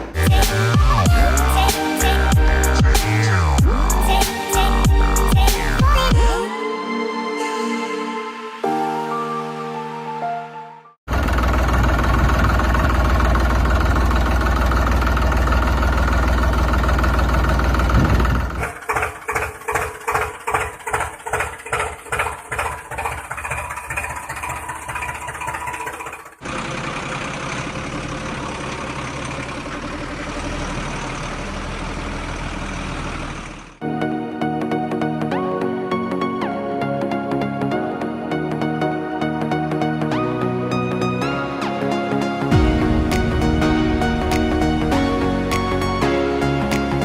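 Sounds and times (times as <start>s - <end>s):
tractor engine running: 0.0s - 6.4s, 11.1s - 33.8s, 41.8s - 47.0s.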